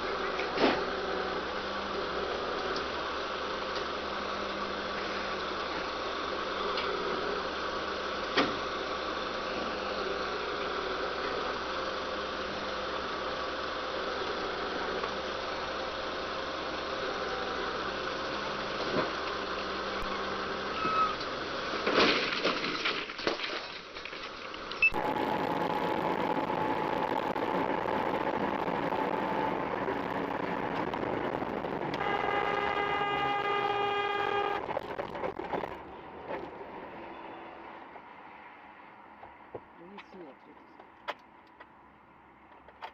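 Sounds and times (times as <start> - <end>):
vehicle engine noise: 0.0 - 42.9
vehicle horn blast: 31.9 - 34.9.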